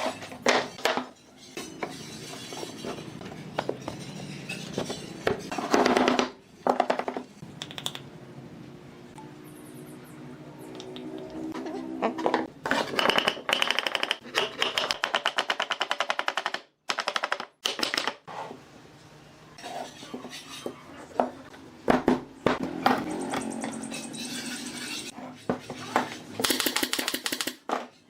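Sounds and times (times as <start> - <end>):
tools clattering on wood: 0.0 - 7.2.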